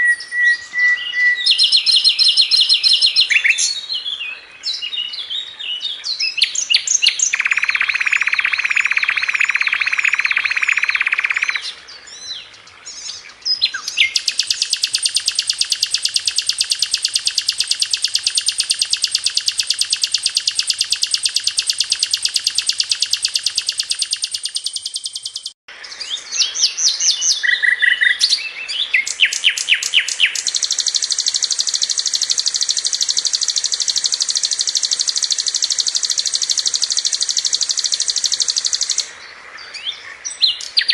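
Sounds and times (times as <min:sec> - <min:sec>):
flycatcher singing: 0:00.0 - 0:05.1, 0:06.1 - 0:12.4, 0:13.0 - 0:39.1.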